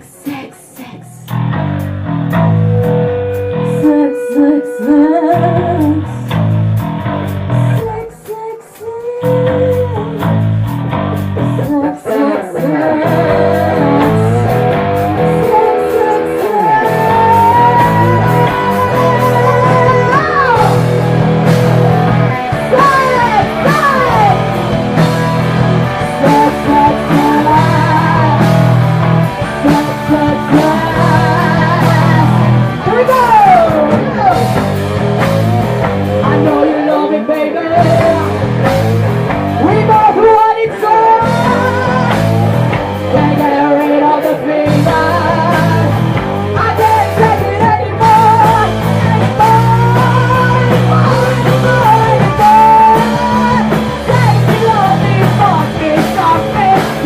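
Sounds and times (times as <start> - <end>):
person singing: 0.0 - 1.3, 2.8 - 6.4, 7.7 - 10.4, 11.4 - 57.0
live punk rock band: 0.0 - 57.0.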